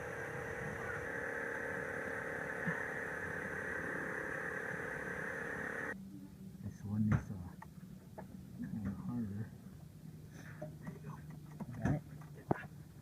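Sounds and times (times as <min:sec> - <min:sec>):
machine noise with whine: 0:00.0 - 0:06.0.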